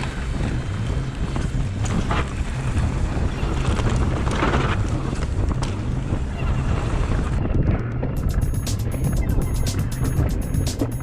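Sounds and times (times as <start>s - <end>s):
mountain bike tyre rumble: 0.0s - 8.2s
wind noise on microphone: 0.0s - 11.0s.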